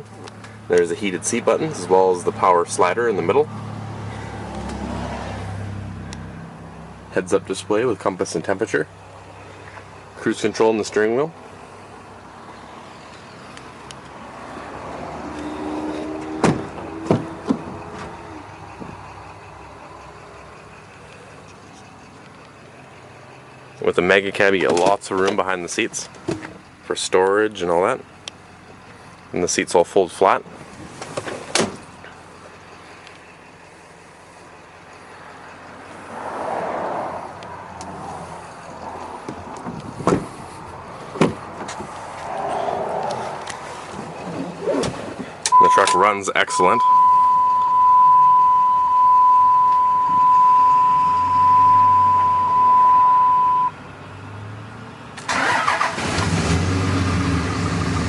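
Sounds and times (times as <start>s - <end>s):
low hum in vehicle cab: 43.1s - 53.8s.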